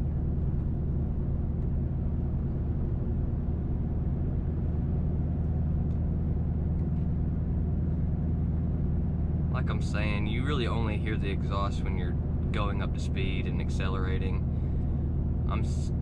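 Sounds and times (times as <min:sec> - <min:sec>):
car engine drone: 0:00.0 - 0:16.0
road and tyre noise: 0:00.0 - 0:16.0
car exhaust: 0:13.6 - 0:16.0.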